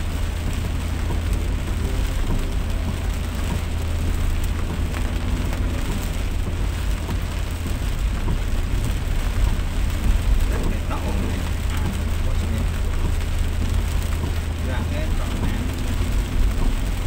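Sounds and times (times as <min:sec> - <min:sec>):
heavy rain falling: 0:00.0 - 0:17.0
vehicle rumble on wet road: 0:00.0 - 0:17.0.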